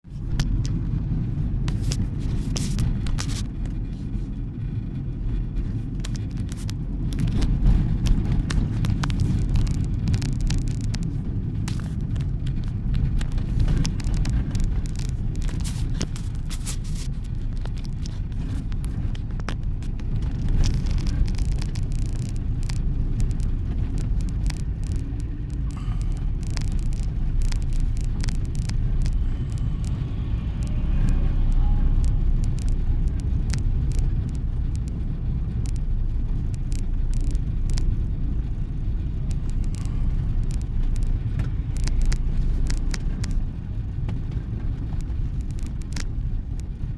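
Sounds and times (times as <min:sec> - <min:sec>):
car driving on rough road: 0:00.0 - 0:46.9.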